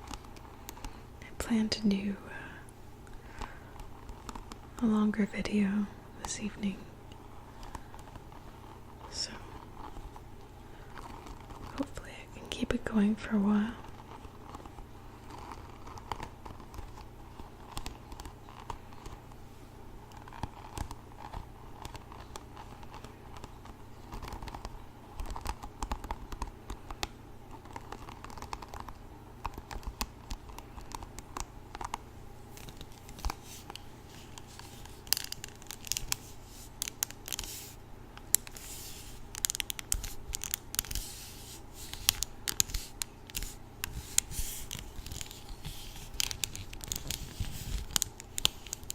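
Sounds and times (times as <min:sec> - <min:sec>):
hairbrush bristles scratching: 0:32.5 - 0:48.9.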